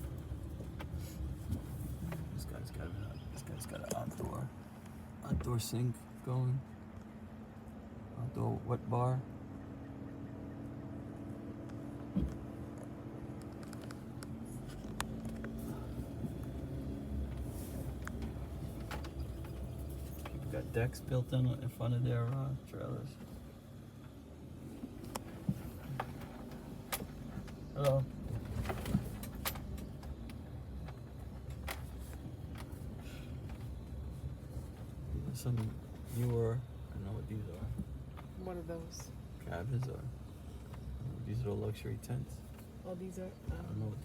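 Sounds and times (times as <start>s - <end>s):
vehicle engine humming: 0.0s - 44.0s
sharp clicks and light rattles: 11.6s - 15.6s, 17.3s - 20.9s, 24.9s - 34.2s.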